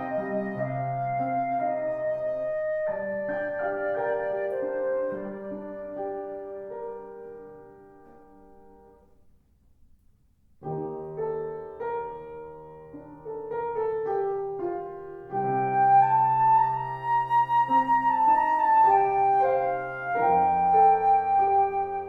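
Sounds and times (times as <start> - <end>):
flute high note: 0.0 - 6.4
piano chords: 0.0 - 9.2, 10.6 - 22.0.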